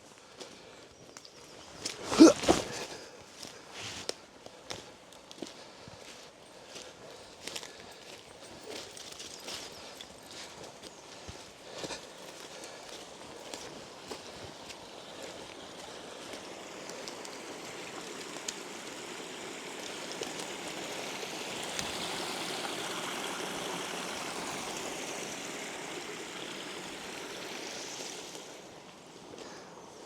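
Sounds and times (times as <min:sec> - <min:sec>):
running water rushing: 0:08.7 - 0:30.0.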